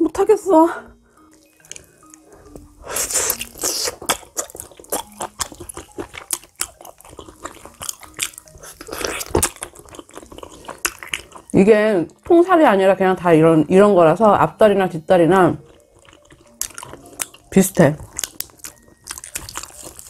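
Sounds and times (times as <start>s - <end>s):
wet chewing mouth clicks: 1.3s - 11.5s, 15.6s - 20.0s.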